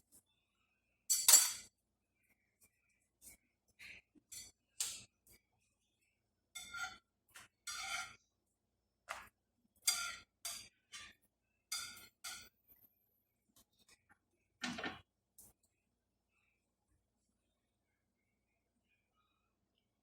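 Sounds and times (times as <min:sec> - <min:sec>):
utensils clinking on cookware: 0:01.1 - 0:01.7, 0:03.9 - 0:05.4, 0:06.5 - 0:08.2, 0:09.1 - 0:12.6
utensil scraping: 0:07.7 - 0:08.2.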